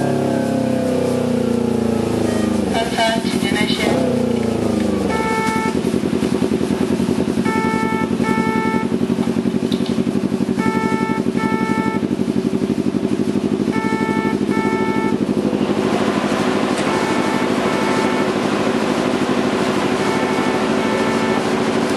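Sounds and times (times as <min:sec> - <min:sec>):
motorcycle engine idling: 0:00.0 - 0:21.9
short double beep: 0:05.1 - 0:05.8, 0:07.5 - 0:08.9, 0:10.6 - 0:12.0, 0:13.8 - 0:15.2.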